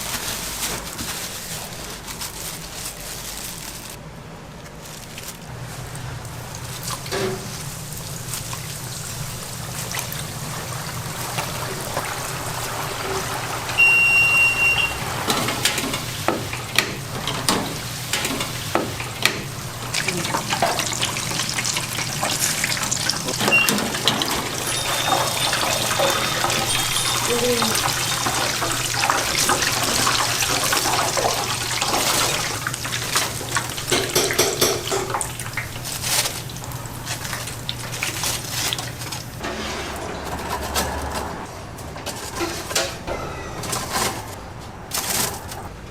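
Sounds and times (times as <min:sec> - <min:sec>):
short high beep: 0:13.8 - 0:15.0, 0:23.5 - 0:23.8, 0:24.6 - 0:27.8
kitchen clicks and clatter: 0:15.2 - 0:35.3, 0:41.9 - 0:45.7.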